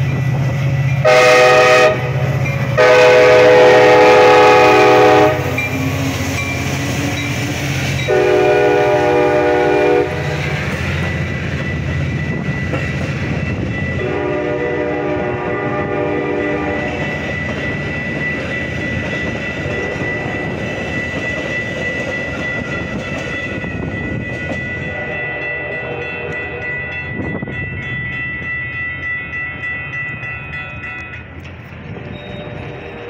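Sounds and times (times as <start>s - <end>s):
crossing warning bell ringing: 0.0s - 33.0s
train rumbling over crossing: 0.0s - 33.0s
train horn: 1.0s - 6.0s, 8.1s - 10.4s, 14.0s - 17.1s, 25.0s - 26.8s.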